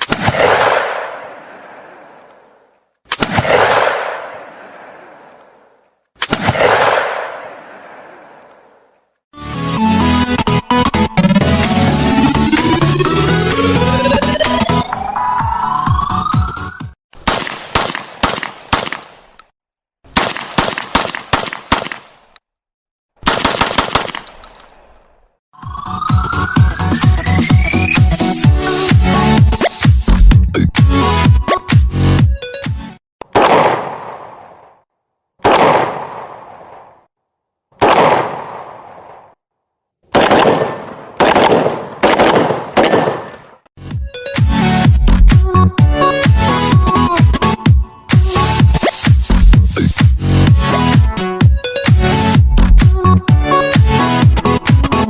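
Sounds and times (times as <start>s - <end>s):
shotgun shots echoing: 0.0s - 8.8s, 17.2s - 19.3s, 20.1s - 22.4s, 23.2s - 25.1s, 33.2s - 34.8s, 35.4s - 37.1s, 37.8s - 39.4s, 40.1s - 43.7s
electronic music: 9.4s - 17.0s, 25.6s - 32.9s, 43.8s - 55.0s.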